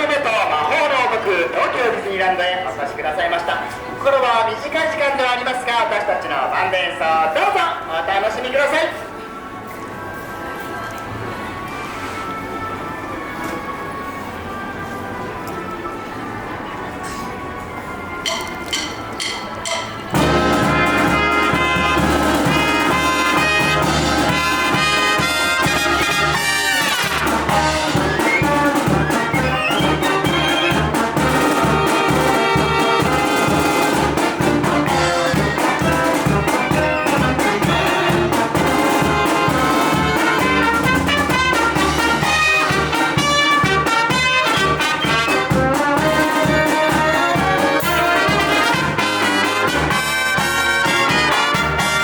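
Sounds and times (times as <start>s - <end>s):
brass band playing: 17.3s - 52.0s
steady drum beat: 18.3s - 52.0s.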